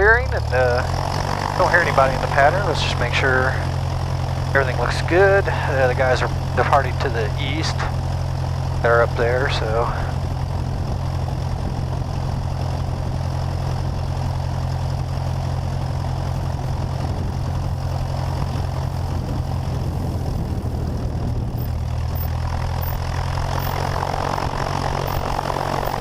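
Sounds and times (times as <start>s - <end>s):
propeller plane engine idling: 0.0s - 26.0s.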